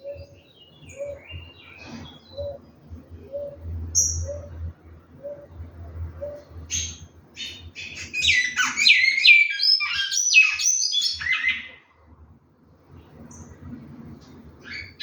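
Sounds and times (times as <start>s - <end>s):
finch singing whistled notes: 6.2s - 11.7s.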